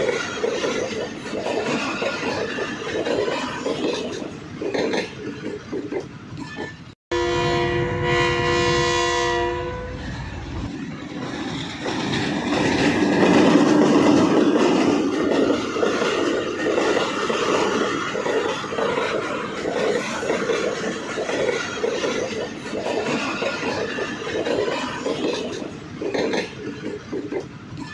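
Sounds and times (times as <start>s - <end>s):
train rumbling on rails: 0.0s - 27.9s
train horn blowing: 7.1s - 10.2s.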